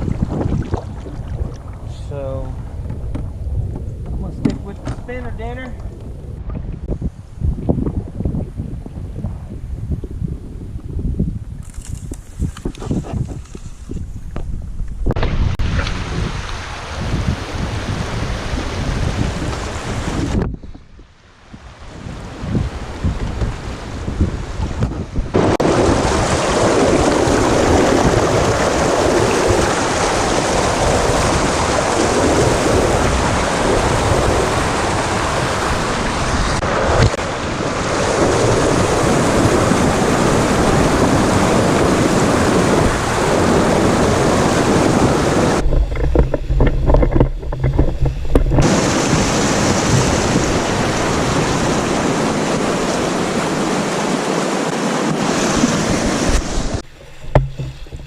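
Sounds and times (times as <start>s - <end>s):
whitewater roaring: 0.0s - 2.9s, 21.5s - 58.0s.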